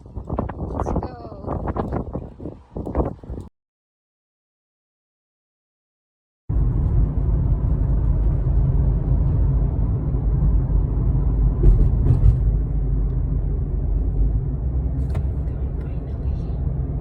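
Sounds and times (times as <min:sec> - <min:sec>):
car road and engine rumble: 0:06.5 - 0:17.0.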